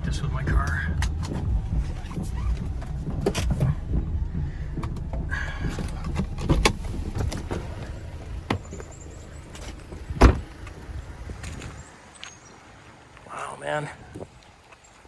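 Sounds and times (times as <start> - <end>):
car door thudding shut: 0.0 - 11.8
clicks and rattles: 0.0 - 11.8
car engine idling: 0.0 - 13.8.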